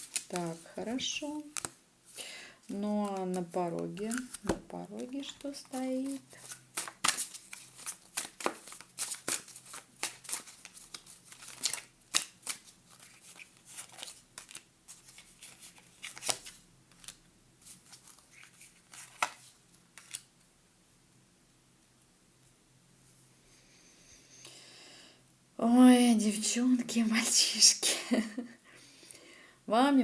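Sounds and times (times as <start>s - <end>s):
cards shuffling: 0.0s - 1.8s, 2.8s - 20.3s.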